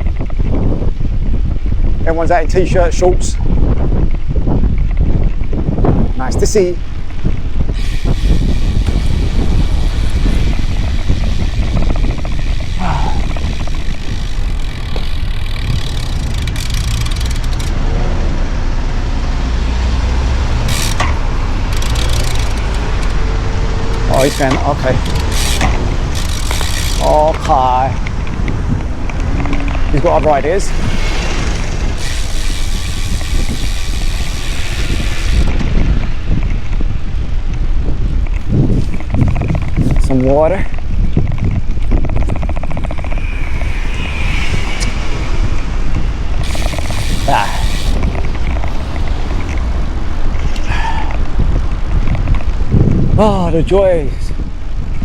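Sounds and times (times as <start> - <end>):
wind buffeting microphone: 0.0 - 55.0
road traffic passing: 4.2 - 53.2
higher hiss: 42.8 - 49.1.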